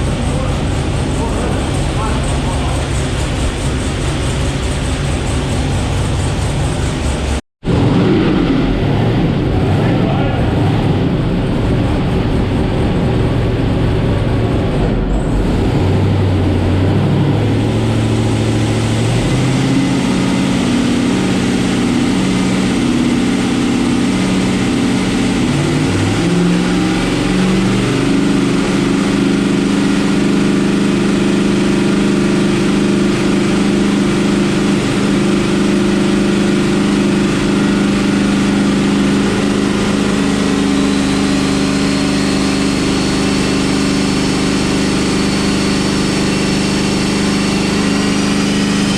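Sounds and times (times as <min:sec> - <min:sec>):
loud car engine on dyno: 0:00.0 - 0:48.9.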